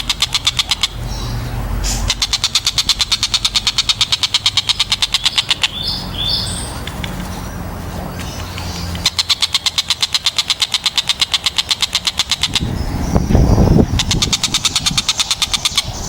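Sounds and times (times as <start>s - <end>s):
kingfisher rattling trill: 0.0s - 1.4s, 2.0s - 7.3s, 8.2s - 16.0s
kingfisher high calls: 0.0s - 7.5s, 8.2s - 16.0s
steady low rumble: 12.3s - 16.0s.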